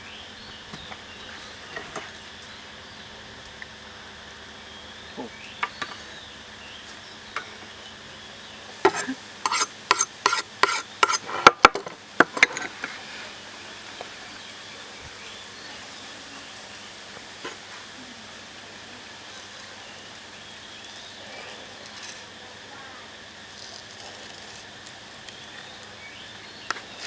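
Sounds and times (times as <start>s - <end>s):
utensils and dishes clinking: 8.9s - 13.0s.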